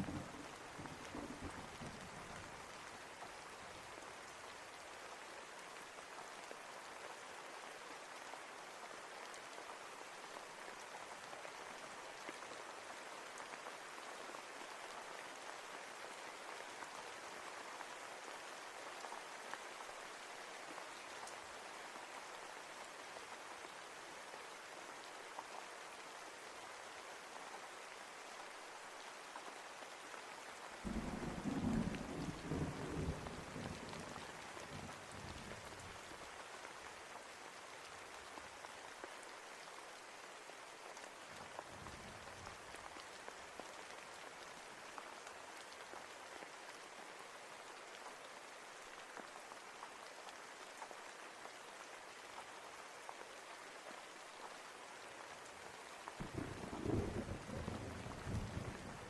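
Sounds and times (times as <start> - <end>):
low rumble of thunder: 0.0 - 2.4, 30.9 - 34.2, 56.2 - 59.0
steady rainfall: 0.0 - 59.0.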